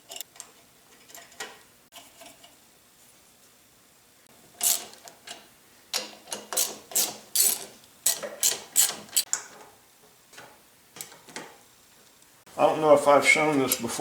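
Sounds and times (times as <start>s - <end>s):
metallic clicks and clacks of tools: 0.0s - 1.6s, 4.6s - 9.7s.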